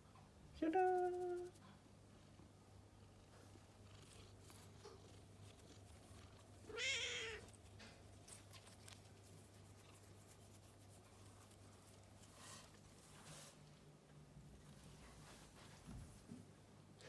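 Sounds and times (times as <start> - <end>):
cat meowing: 6.7 - 7.5.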